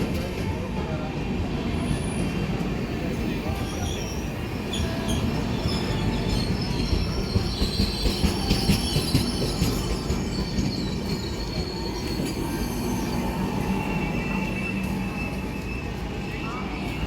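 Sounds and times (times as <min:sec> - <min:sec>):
train wheels rumbling on rails: 0:00.0 - 0:17.0
high wheel squeal: 0:03.4 - 0:17.0.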